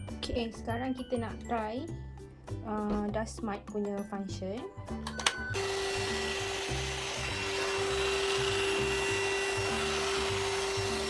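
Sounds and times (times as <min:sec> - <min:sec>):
stick vacuum whining: 0:05.1 - 0:11.0.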